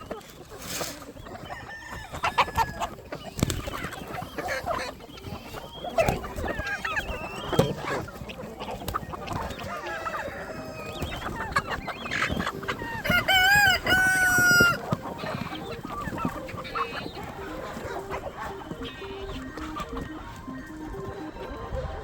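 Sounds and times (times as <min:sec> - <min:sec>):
chickens clucking: 0:00.0 - 0:22.0
rooster crowing: 0:01.5 - 0:02.9, 0:13.0 - 0:14.8.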